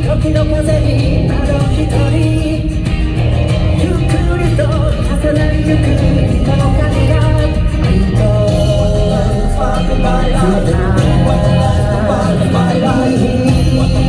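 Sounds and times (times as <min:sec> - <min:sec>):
person singing: 0:00.0 - 0:14.0
rock band playing loud: 0:00.0 - 0:14.0.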